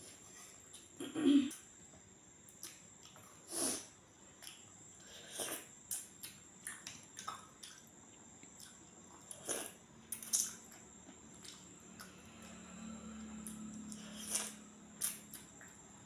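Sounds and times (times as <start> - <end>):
wet chewing clicks: 5.9 - 10.8.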